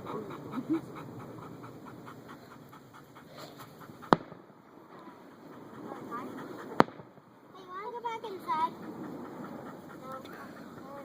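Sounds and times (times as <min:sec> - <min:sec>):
dog panting: 0:00.0 - 0:11.0
firework bang: 0:04.1 - 0:04.4, 0:06.7 - 0:07.2.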